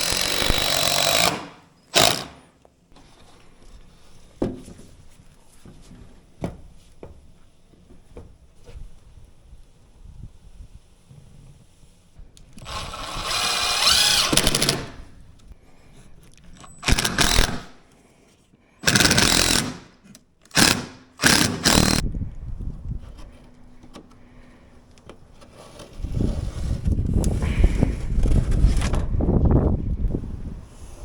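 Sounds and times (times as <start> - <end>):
power tool bursts: 0.0 - 2.4, 12.6 - 15.0, 16.8 - 17.7, 18.8 - 19.9, 20.5 - 22.0.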